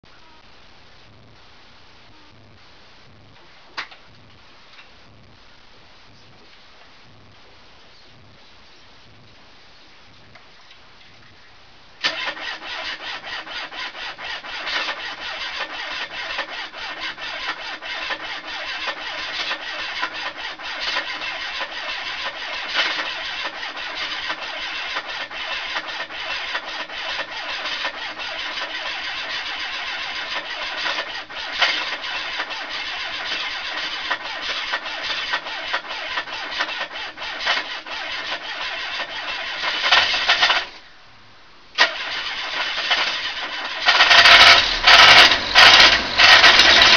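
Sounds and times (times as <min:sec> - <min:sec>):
engine running with rapid knock: 0:12.0 - 0:40.8, 0:41.8 - 0:46.9.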